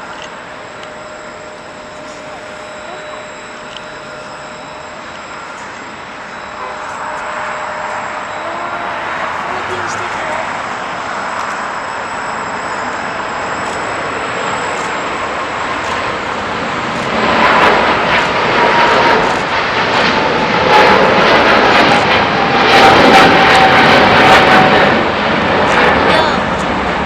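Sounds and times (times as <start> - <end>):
jet airliner taking off: 0.0 - 27.0
jet engine whine: 0.0 - 27.0.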